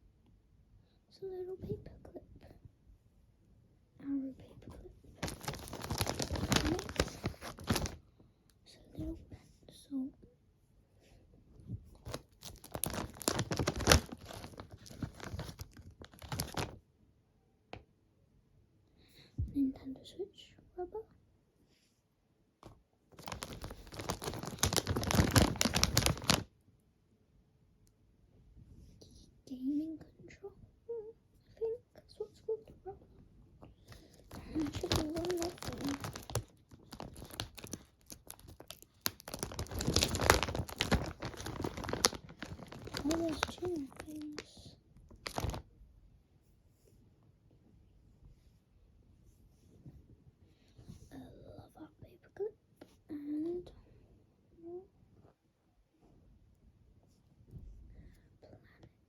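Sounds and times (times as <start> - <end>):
packaging being torn and crinkled: 5.2 - 8.0, 12.0 - 16.8, 23.2 - 26.5, 33.9 - 45.6.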